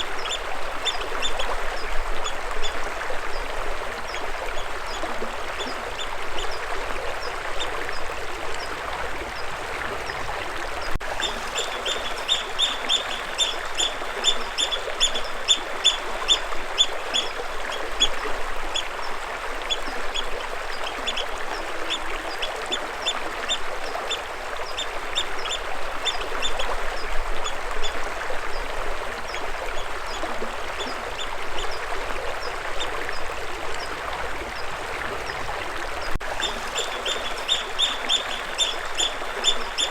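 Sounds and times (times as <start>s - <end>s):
running water rushing: 0.0s - 39.9s
bird chirping: 11.2s - 16.0s, 36.4s - 39.9s.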